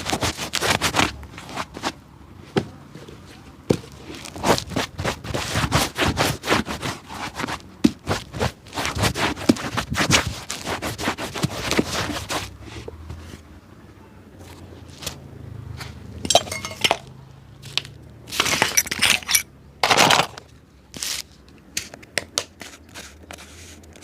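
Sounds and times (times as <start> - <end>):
brush scraping a shoe: 0.0 - 2.0, 4.0 - 13.4, 22.6 - 24.0.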